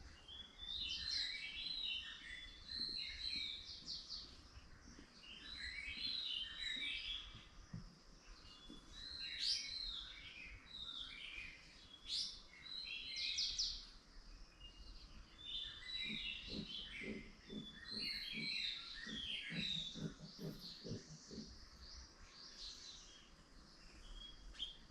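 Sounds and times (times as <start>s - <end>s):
songbirds chirping and singing: 0.0s - 24.9s
low rapidly repeated animal call: 15.5s - 22.2s.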